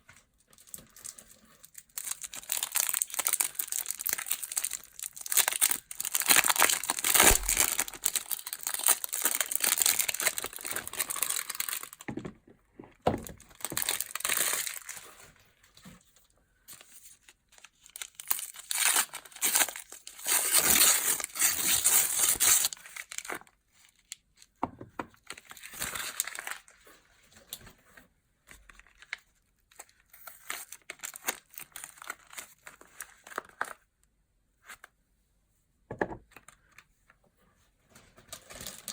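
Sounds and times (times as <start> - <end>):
packaging crinkling and tearing: 0.4 - 12.1, 13.2 - 15.4, 16.7 - 24.5, 25.2 - 26.8, 28.5 - 33.8, 38.2 - 38.9.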